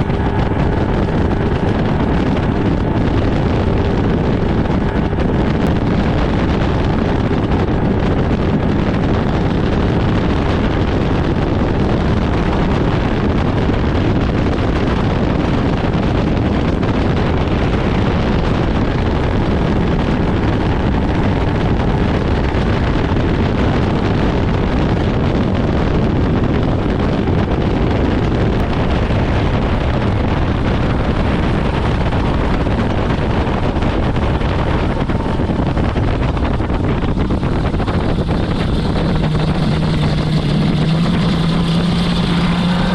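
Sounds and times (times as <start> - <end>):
boat engine: 0.0 - 42.9
wind buffeting microphone: 0.0 - 42.9.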